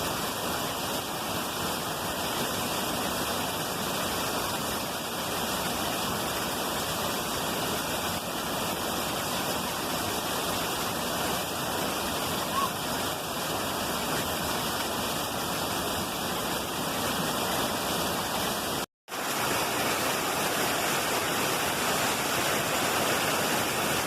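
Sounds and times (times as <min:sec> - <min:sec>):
water rushing: 0:00.0 - 0:24.0.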